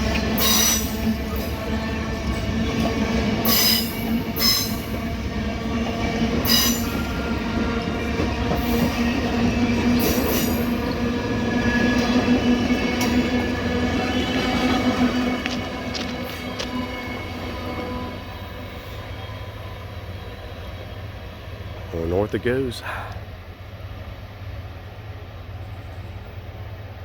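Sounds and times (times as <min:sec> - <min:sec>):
train wheels squealing: 0:00.0 - 0:05.1, 0:06.0 - 0:21.9
train rumbling past: 0:00.0 - 0:27.0.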